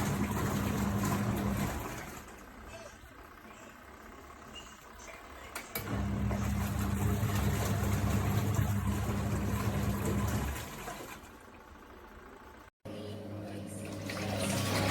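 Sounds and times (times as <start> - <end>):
washing machine motor humming: 0.0 - 14.9.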